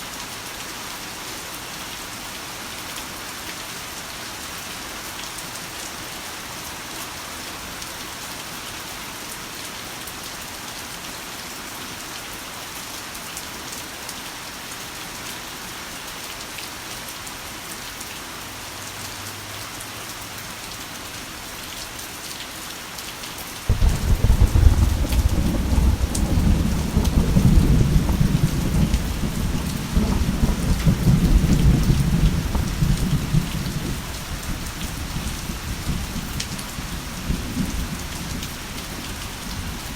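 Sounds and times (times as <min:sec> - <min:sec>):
heavy rain falling: 0:13.0 - 0:39.9
thunder clap and rumble: 0:23.7 - 0:39.9.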